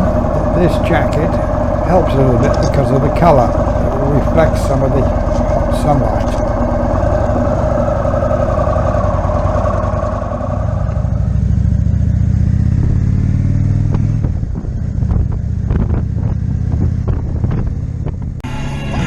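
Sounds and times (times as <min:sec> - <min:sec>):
motorcycle engine running: 0:00.0 - 0:08.7
wind rushing over microphone: 0:00.0 - 0:08.7.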